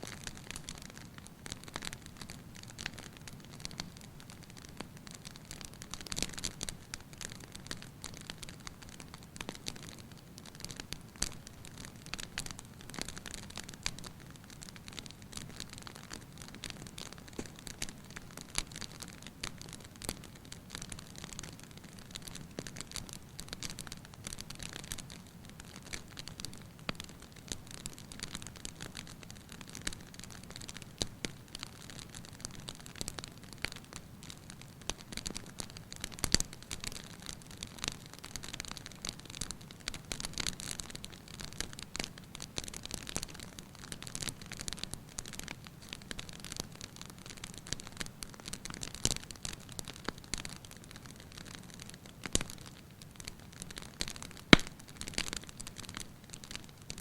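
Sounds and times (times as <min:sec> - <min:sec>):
wood fire crackling: 0:00.0 - 0:57.0
loud pop from fire: 0:54.5 - 0:54.8.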